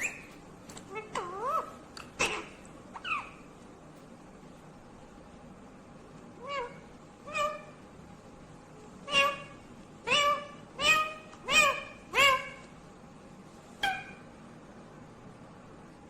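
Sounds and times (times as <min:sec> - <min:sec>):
parrot calls: 0:00.0 - 0:03.5, 0:06.4 - 0:07.8, 0:09.0 - 0:12.8, 0:13.8 - 0:14.3.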